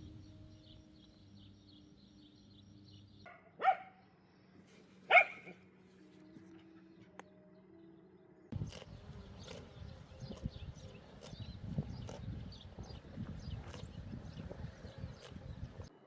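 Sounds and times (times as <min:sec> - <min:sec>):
dog barking: 0:03.3 - 0:04.0, 0:05.1 - 0:05.6.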